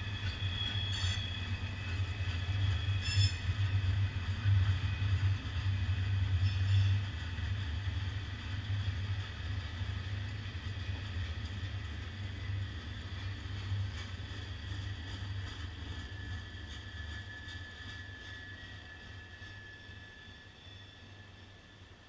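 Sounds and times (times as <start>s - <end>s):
freight train rolling: 0.0s - 22.0s.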